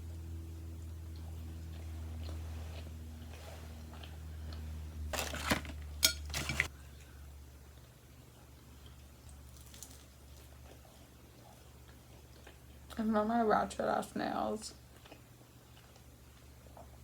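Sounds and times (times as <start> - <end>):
steady low hum: 0.0 - 9.5
dishes and utensils clattering: 6.0 - 6.7.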